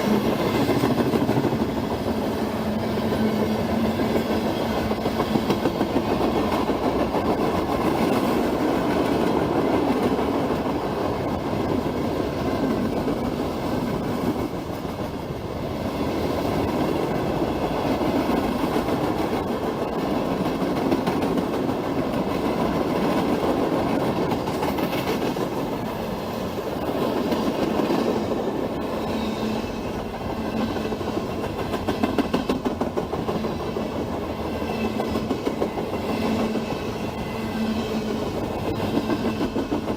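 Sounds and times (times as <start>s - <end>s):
freight train rumble: 0.0s - 39.9s
rhythmic train wheel clicks: 16.6s - 26.0s.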